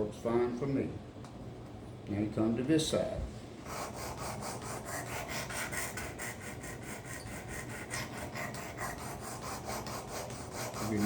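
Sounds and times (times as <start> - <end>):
blade rasping on sharpener: 3.7 - 11.0.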